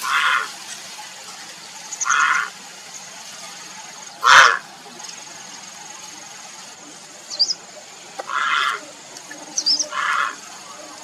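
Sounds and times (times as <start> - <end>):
heron harsh calls: 0.0 - 0.6, 2.0 - 2.6, 4.2 - 4.6, 8.2 - 8.8, 9.8 - 10.5.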